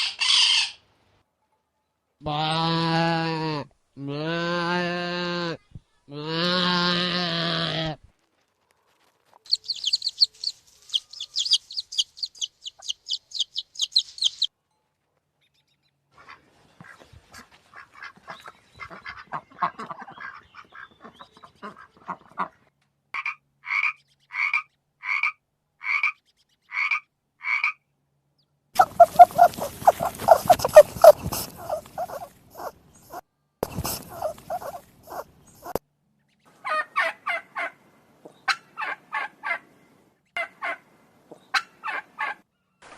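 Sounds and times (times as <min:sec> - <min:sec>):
fast high chirping: 0:09.5 - 0:14.5, 0:28.8 - 0:35.8
dense chattering: 0:28.8 - 0:32.7
animal calls: 0:28.8 - 0:35.8.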